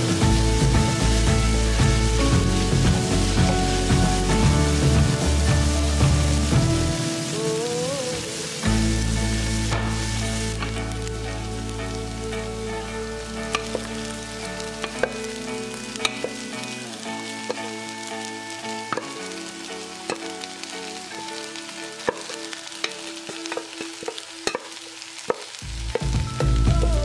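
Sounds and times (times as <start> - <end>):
soft background music: 0.0 - 25.1
food sizzling in a frying pan: 0.0 - 27.0.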